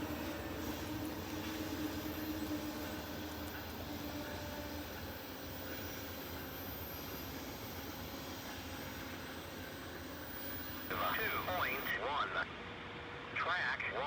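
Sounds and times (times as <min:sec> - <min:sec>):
train rumbling on rails: 0:00.0 - 0:12.0
faint hum: 0:00.0 - 0:12.5.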